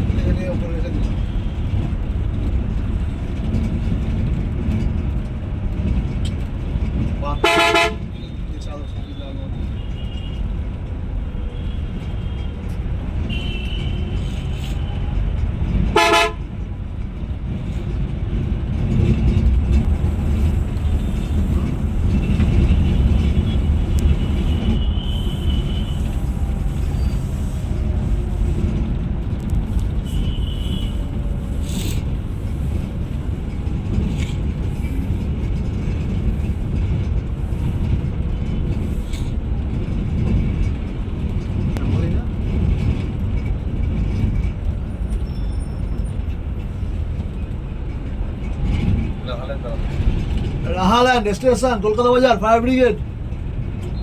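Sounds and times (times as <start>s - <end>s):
bus engine and tyres rumbling: 0.0s - 54.0s
vehicle horns tooting: 7.3s - 10.4s, 11.5s - 15.0s, 15.9s - 16.4s, 22.6s - 26.4s, 30.0s - 31.1s.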